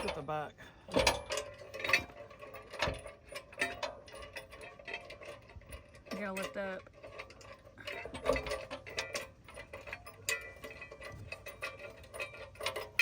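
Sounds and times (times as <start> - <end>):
metallic clicks and knocks: 0.0 - 0.3, 0.9 - 13.0.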